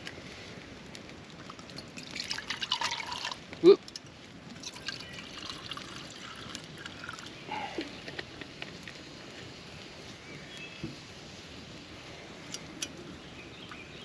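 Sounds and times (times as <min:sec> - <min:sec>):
small clicks and crackles: 0:00.0 - 0:11.0, 0:12.4 - 0:13.9
faint trickling water: 0:01.4 - 0:08.1.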